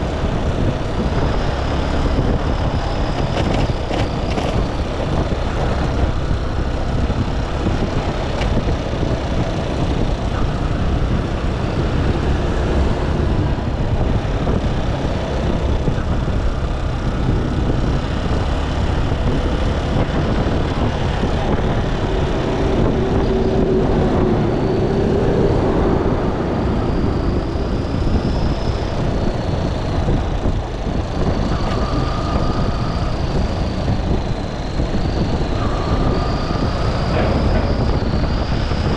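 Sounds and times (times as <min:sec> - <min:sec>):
road and wind noise: 0:00.0 - 0:38.9
faint passing traffic: 0:09.3 - 0:38.9.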